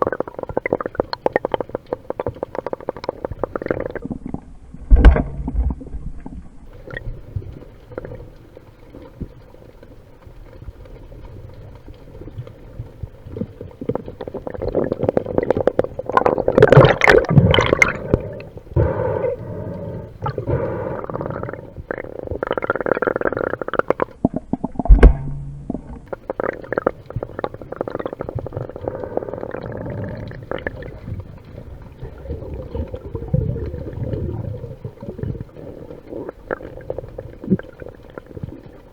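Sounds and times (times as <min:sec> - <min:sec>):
underwater churning water rumble: 0:00.0 - 0:38.9
sharp knock: 0:24.9 - 0:25.9.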